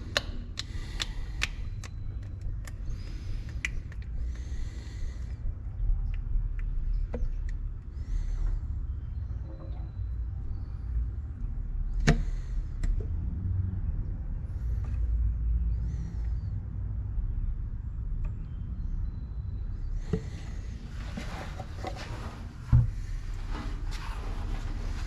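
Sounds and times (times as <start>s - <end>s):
low steady rumble: 0.0s - 25.0s.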